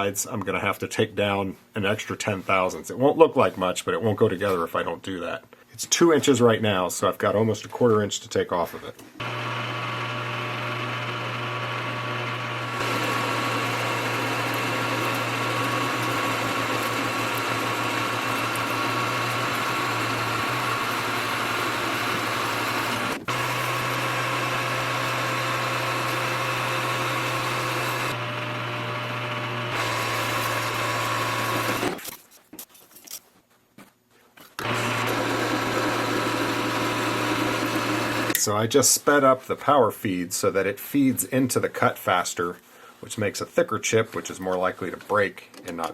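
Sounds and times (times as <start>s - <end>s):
cutting tool in metal: 9.2s - 32.0s
metal lathe motor hum: 9.2s - 32.0s, 34.6s - 38.4s.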